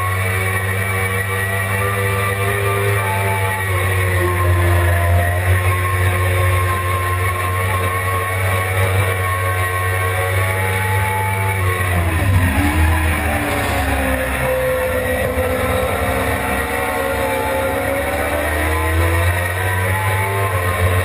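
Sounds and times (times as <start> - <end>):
motorcycle engine at high revs: 0.0 - 21.0.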